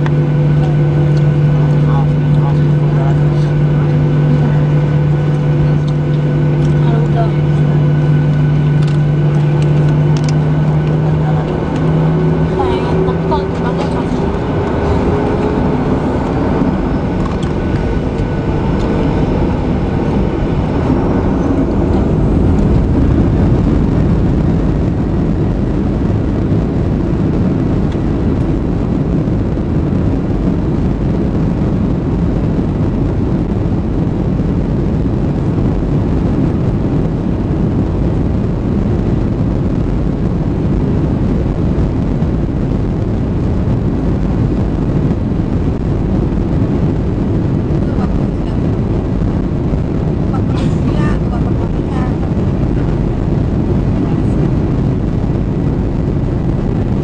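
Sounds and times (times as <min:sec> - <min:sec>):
jet engine whine: 0:00.0 - 0:57.0
jet engines rumbling: 0:00.0 - 0:57.0.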